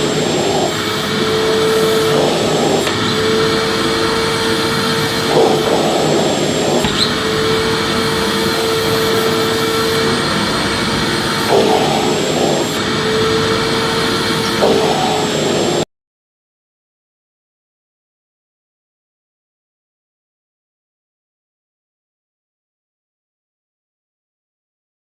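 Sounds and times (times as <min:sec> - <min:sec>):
vacuum cleaner motor running: 0:00.0 - 0:15.8.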